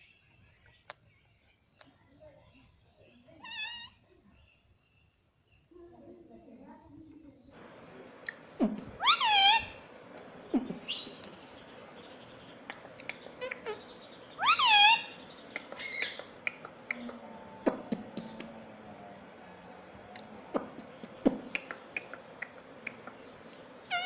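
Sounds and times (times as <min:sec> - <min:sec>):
parrot calling: 0:03.4 - 0:04.0, 0:07.6 - 0:19.3, 0:20.2 - 0:24.0
parrot chirps and clicks: 0:08.2 - 0:18.6, 0:20.1 - 0:24.0.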